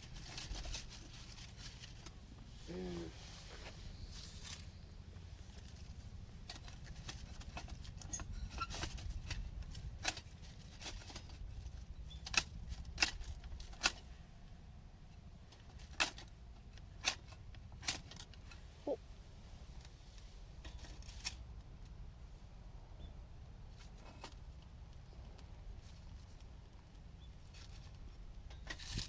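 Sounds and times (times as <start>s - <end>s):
low steady rumble: 0.0s - 29.0s.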